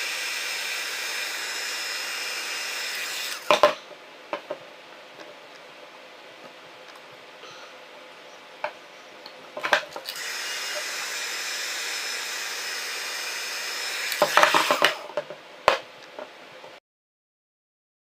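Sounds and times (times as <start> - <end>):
hot-air blower hissing: 0.0 - 3.8, 10.1 - 15.2.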